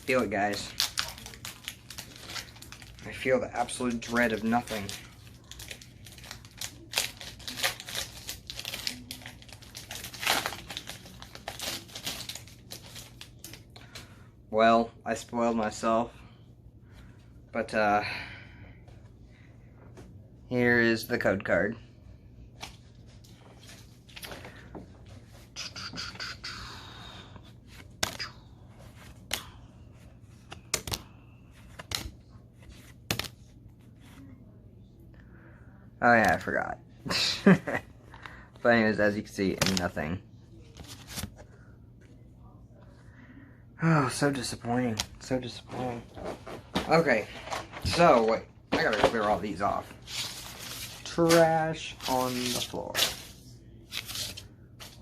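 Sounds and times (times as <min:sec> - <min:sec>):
foil wrapper crinkling: 0:00.0 - 0:13.6
cards rustling: 0:00.0 - 0:14.1, 0:22.6 - 0:25.4, 0:27.6 - 0:34.2, 0:40.7 - 0:41.5, 0:44.8 - 0:55.0
cards clicking: 0:30.6 - 0:31.0.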